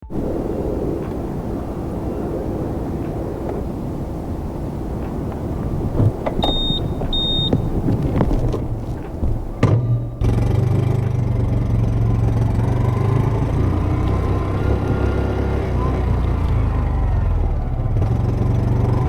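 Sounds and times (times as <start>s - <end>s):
motorcycle engine starting and idling: 1.0s - 19.0s
short high beeps: 6.4s - 7.7s.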